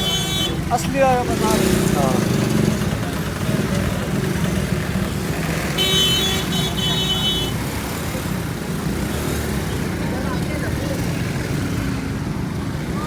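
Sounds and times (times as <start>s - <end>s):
vehicle horn steady tone: 0.0s - 0.7s, 5.7s - 7.7s
motorcycle engine running: 0.0s - 13.0s.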